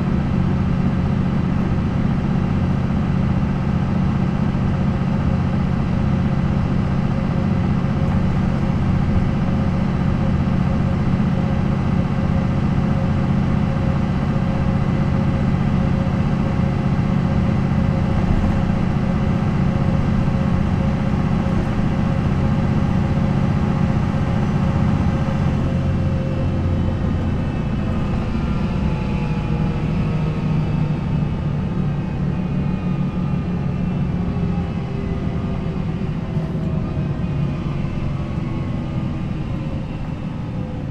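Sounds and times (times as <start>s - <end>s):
bus diesel engine running: 0.0s - 40.9s.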